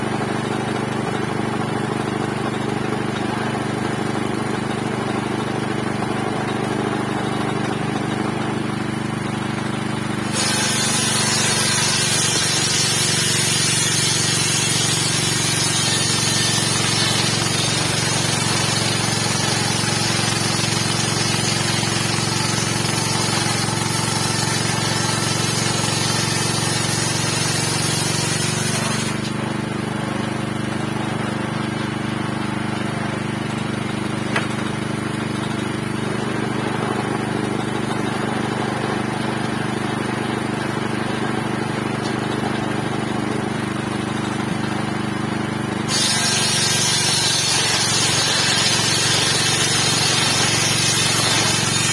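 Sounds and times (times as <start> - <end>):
engine running: 0.0 - 51.9
circular saw cutting wood: 10.1 - 29.5, 43.7 - 51.9.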